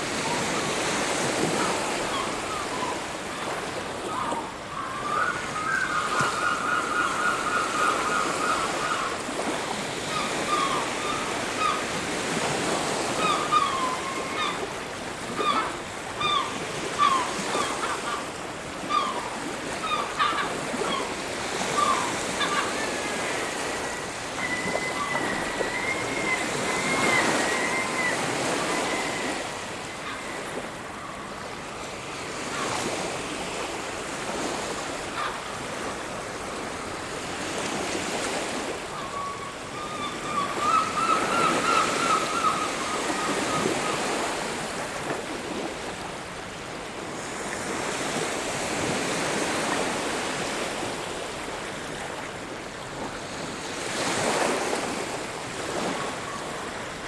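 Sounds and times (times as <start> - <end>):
waves breaking on beach: 0.0 - 57.0
wind: 0.0 - 57.0.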